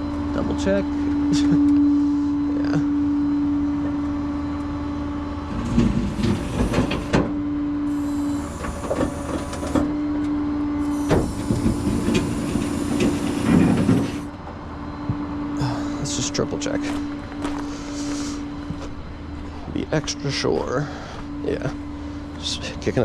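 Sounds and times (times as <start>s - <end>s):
hydraulic pump whine: 0.0s - 20.5s
hydraulic hiss: 6.2s - 7.2s, 7.9s - 9.9s, 10.8s - 14.3s.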